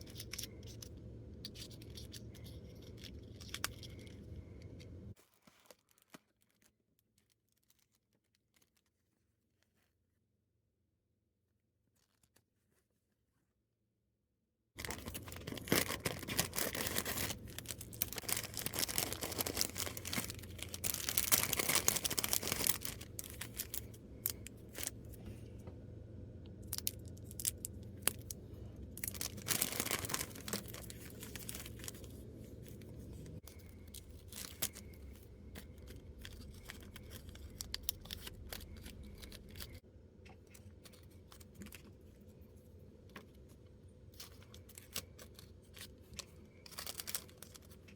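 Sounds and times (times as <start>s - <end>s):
packaging tearing and crinkling: 14.8s - 25.0s, 26.6s - 39.8s, 44.2s - 47.9s.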